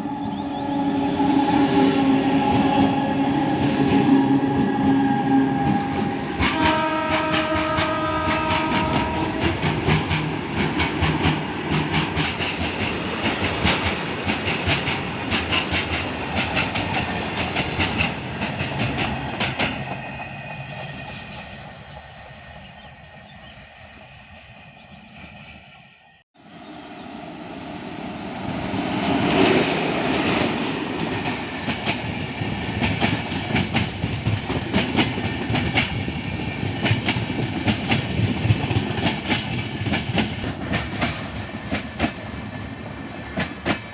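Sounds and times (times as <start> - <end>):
train horn: 0.0 - 10.1.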